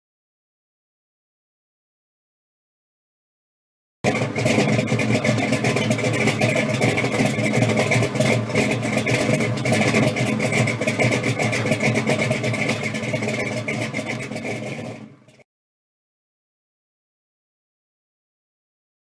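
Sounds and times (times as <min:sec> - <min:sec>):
car engine running: 0:04.0 - 0:15.4.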